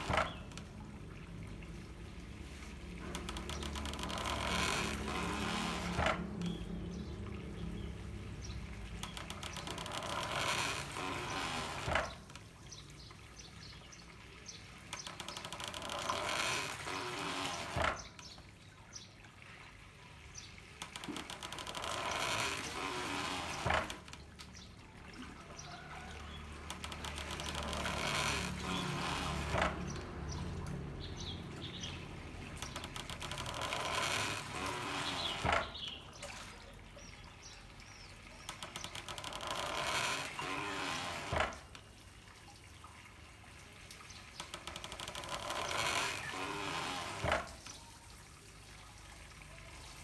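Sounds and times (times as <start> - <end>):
water gushing: 0.0 - 50.0.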